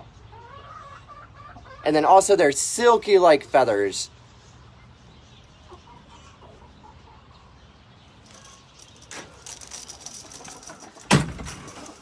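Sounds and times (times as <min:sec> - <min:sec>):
chickens clucking softly: 0:00.0 - 0:02.1, 0:04.3 - 0:08.6
light metallic rattling and clicks: 0:08.2 - 0:12.0.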